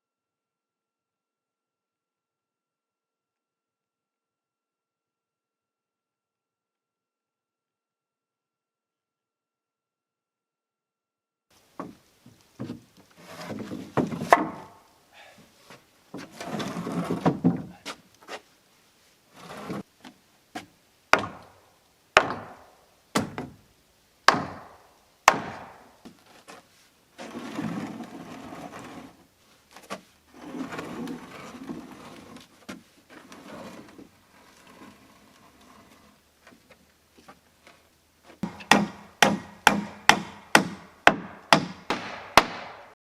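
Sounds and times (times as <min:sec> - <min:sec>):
lumber scraping and knocking: 0:11.8 - 0:14.9, 0:15.5 - 0:18.5, 0:19.3 - 0:21.6, 0:22.2 - 0:23.6, 0:24.3 - 0:42.6
hammer blows on wood: 0:38.4 - 0:43.0.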